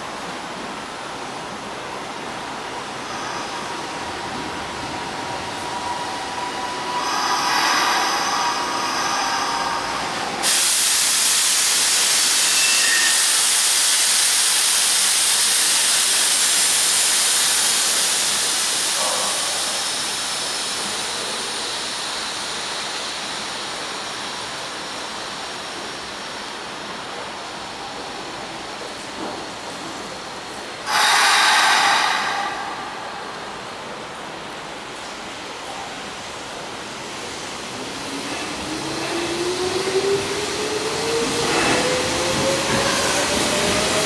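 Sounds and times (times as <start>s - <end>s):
electric train whining: 2.8s - 14.9s, 30.8s - 34.5s, 38.1s - 44.0s
train brake hiss: 5.0s - 25.2s, 30.8s - 34.1s.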